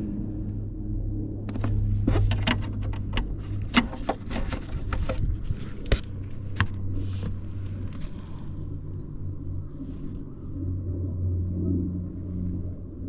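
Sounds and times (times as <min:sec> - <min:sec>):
sharp clicks and knocks: 0:01.5 - 0:08.0.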